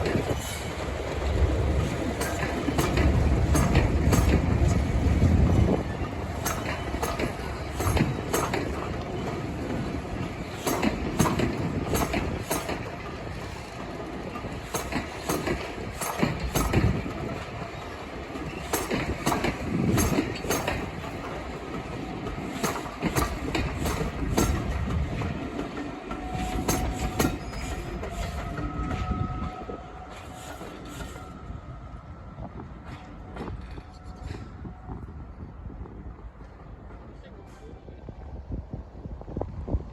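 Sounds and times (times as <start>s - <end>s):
wheels clacking over rail joints: 0.0s - 31.3s
train rumble: 0.0s - 39.9s.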